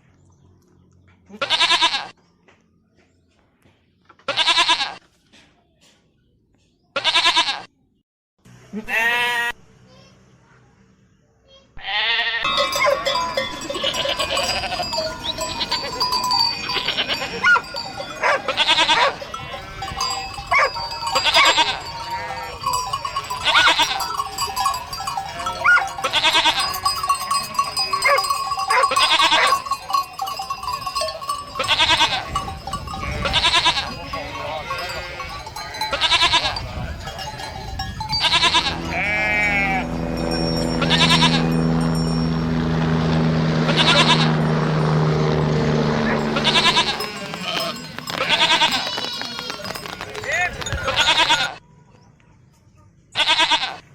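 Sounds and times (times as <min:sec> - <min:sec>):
animals bleating: 0:01.3 - 0:02.2, 0:04.2 - 0:05.0, 0:07.0 - 0:07.7, 0:08.7 - 0:09.6, 0:11.8 - 0:51.6, 0:53.1 - 0:53.9
livestock bells clanking: 0:12.2 - 0:51.6.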